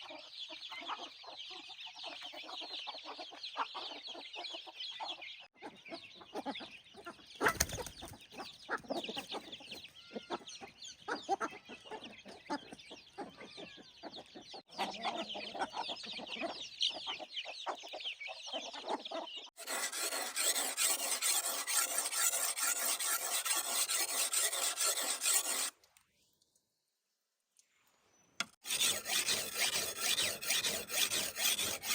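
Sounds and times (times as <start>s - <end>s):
chickens clucking: 0.0s - 19.5s
loud rasping scrape: 19.6s - 25.7s, 28.5s - 31.9s.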